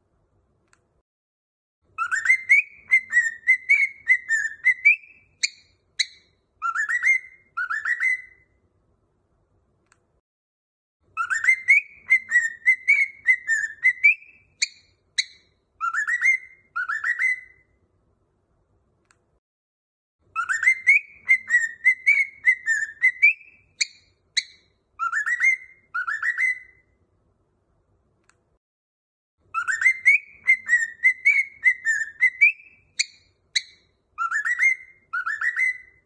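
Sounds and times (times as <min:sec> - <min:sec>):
whistled tune: 0:02.0 - 0:08.5, 0:11.2 - 0:17.7, 0:20.3 - 0:27.0, 0:29.5 - 0:36.0.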